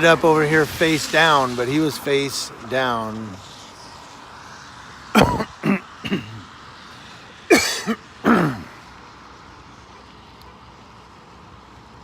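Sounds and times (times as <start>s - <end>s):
throat-clearing and coughing: 5.2s - 6.5s, 7.5s - 8.7s.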